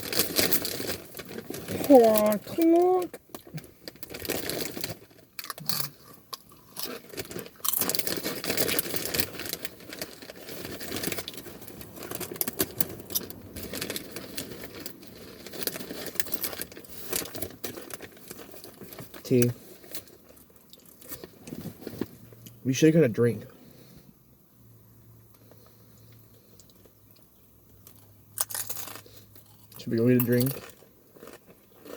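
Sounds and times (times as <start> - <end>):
packaging crinkling: 0.0 - 22.2
crunching and chewing chips: 0.0 - 22.6, 25.3 - 31.9.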